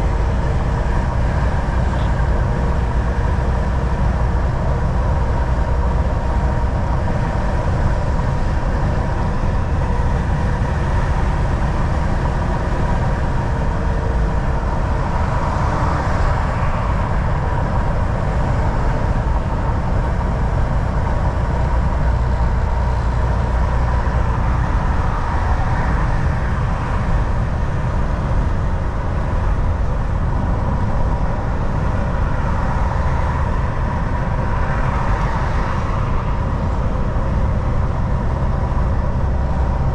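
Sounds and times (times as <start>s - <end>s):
road noise: 0.0s - 39.9s
truck diesel engine drone: 0.0s - 39.9s.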